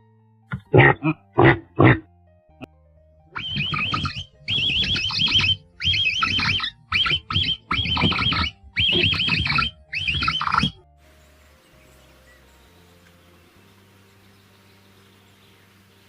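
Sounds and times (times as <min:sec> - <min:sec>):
animal warbling call: 0:00.5 - 0:02.1, 0:03.4 - 0:10.8.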